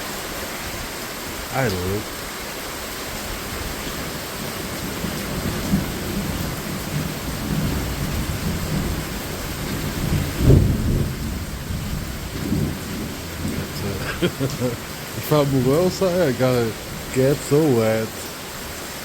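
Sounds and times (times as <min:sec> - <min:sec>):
heavy rain pouring: 0:00.0 - 0:19.0
low thunder rumbling: 0:03.5 - 0:18.2.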